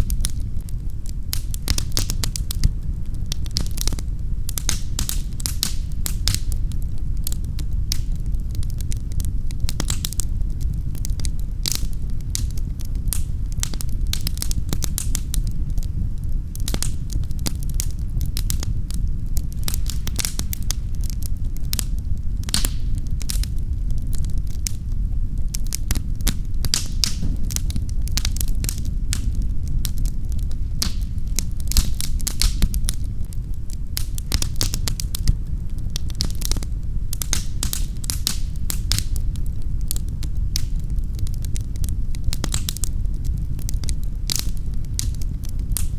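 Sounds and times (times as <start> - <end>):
wood fire crackling: 0.0 - 45.9
low rumble: 26.4 - 31.3.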